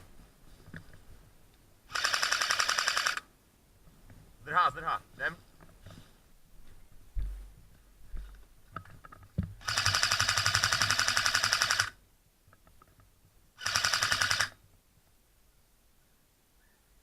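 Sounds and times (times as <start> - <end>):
airsoft gun firing full auto: 1.9 - 3.2, 9.6 - 12.0, 13.6 - 14.6.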